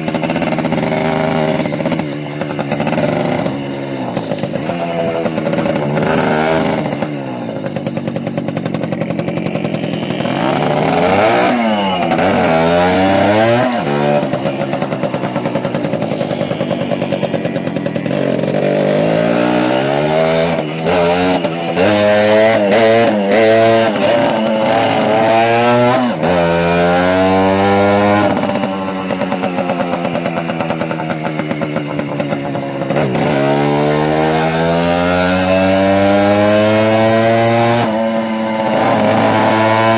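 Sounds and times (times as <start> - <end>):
small motorcycle engines accelerating: 0.0 - 39.9.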